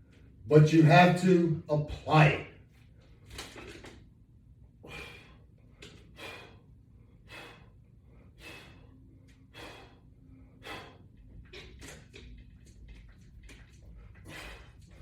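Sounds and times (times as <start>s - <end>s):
person breathing hard: 4.8s - 11.2s, 14.2s - 15.0s.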